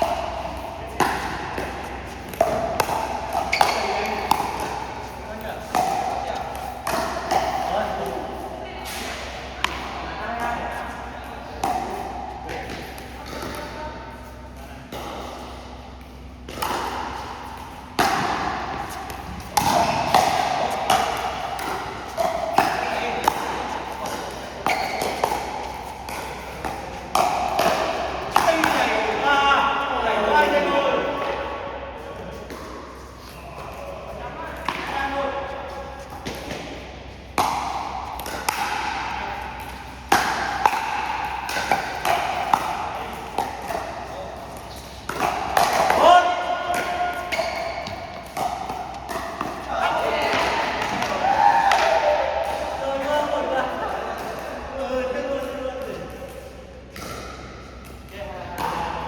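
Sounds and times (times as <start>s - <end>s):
paddles hitting plastic ball: 0.0s - 8.2s, 16.0s - 29.0s, 36.0s - 52.7s.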